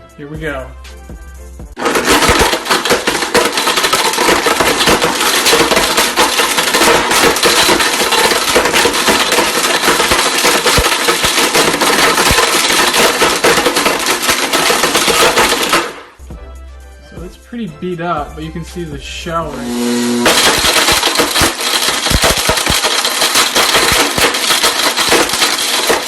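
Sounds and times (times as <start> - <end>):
mixer grinder motor: 1.8 - 16.0, 19.5 - 26.0
broken pieces clattering in jar: 1.8 - 16.2, 20.2 - 26.0.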